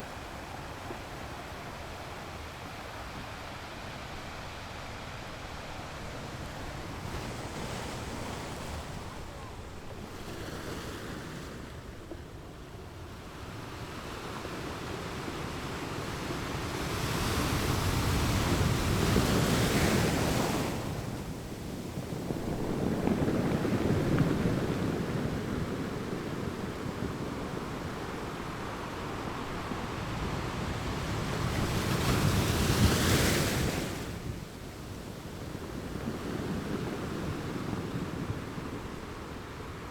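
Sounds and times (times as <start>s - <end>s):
wind blowing over microphone: 14.7s - 39.9s.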